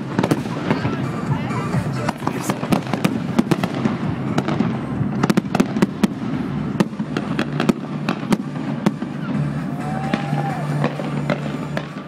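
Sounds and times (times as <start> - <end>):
fireworks bangs: 0.0 - 12.0
rumble of distant explosions: 0.0 - 12.0.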